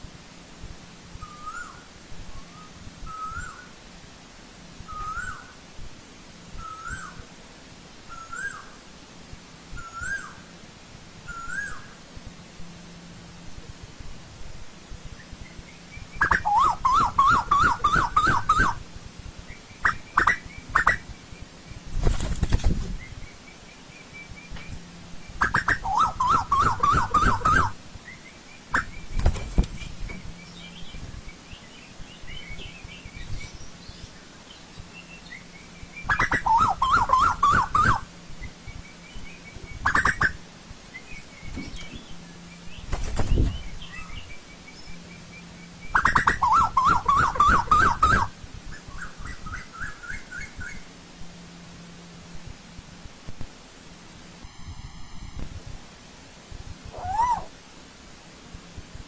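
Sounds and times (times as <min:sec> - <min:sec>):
koel calling: 0:16.1 - 0:18.8, 0:19.8 - 0:21.1, 0:25.4 - 0:27.8, 0:36.0 - 0:38.1, 0:46.0 - 0:48.4, 0:56.9 - 0:57.6.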